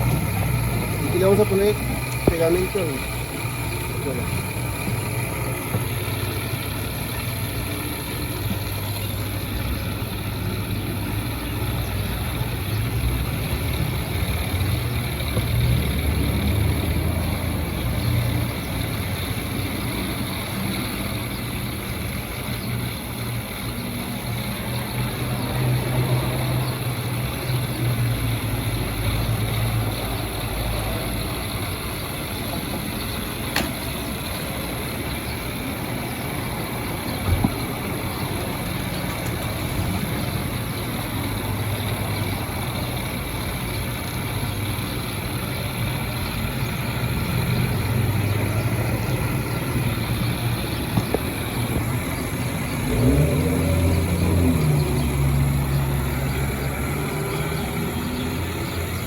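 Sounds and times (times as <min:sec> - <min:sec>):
low motor hum: 0:00.0 - 0:59.0
sharp click: 0:33.5 - 0:33.9.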